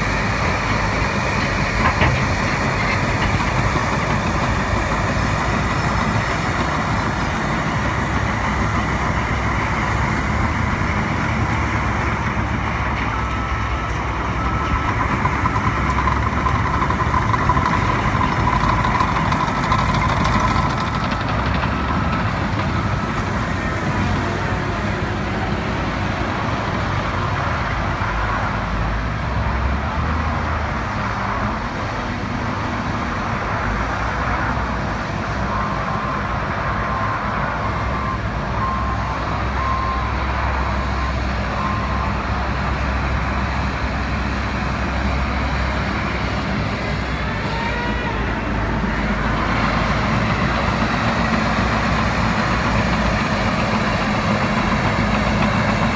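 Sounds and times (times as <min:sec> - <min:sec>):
heavy machinery engine rumble: 0:00.0 - 0:55.9
reversing alarm beeping: 0:35.4 - 0:43.6.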